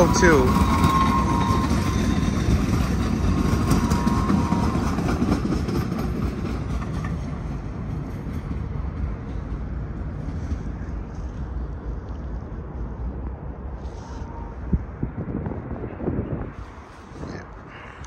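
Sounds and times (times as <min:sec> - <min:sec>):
light rail train rumbling past: 0:00.0 - 0:18.0.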